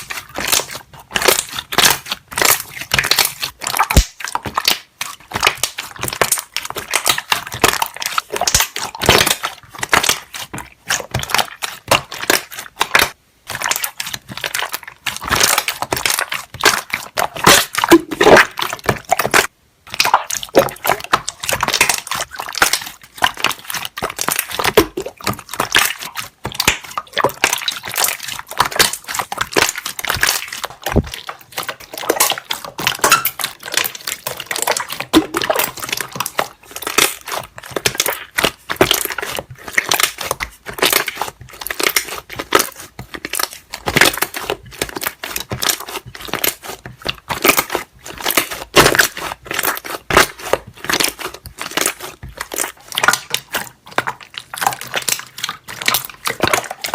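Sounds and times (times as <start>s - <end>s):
slime squeezed with popping bubbles: 0.0s - 56.9s.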